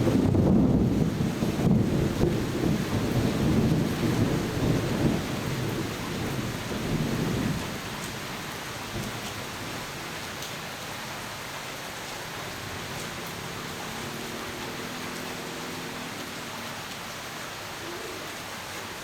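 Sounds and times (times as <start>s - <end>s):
thunder rumbling: 0.0s - 10.0s
rain hissing: 0.0s - 19.0s.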